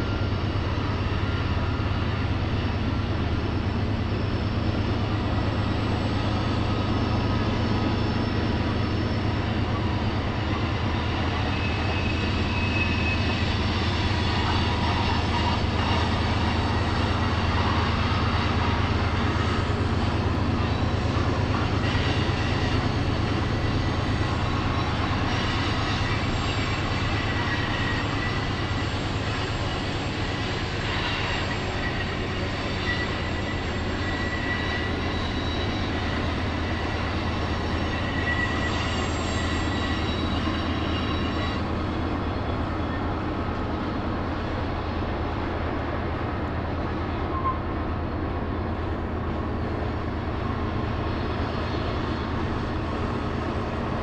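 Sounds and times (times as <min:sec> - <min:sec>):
high wheel squeal: 0:00.0 - 0:54.0
train wheels rumbling on rail: 0:00.0 - 0:54.0.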